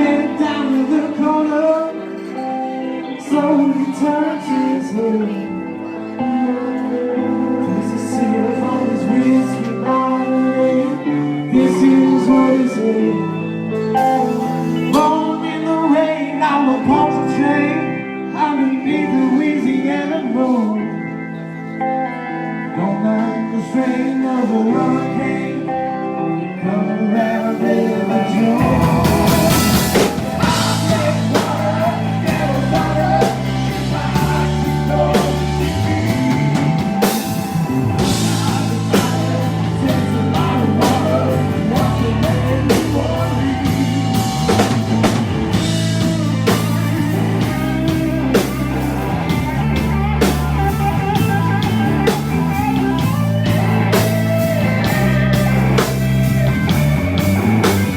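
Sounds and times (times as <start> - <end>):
bass guitar: 0.0 - 57.9
guitar: 0.0 - 57.9
rock blues band playing: 0.0 - 57.9
drums: 13.2 - 17.6, 27.3 - 57.9.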